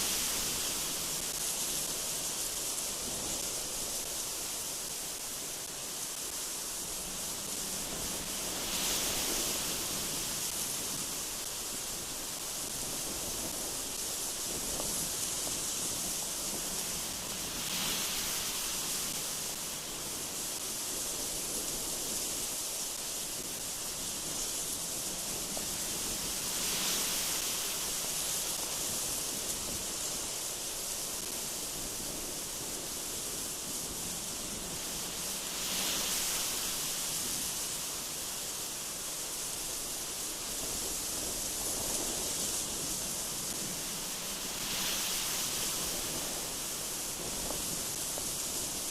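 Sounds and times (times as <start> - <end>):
gusty wind through trees: 0.0 - 48.9.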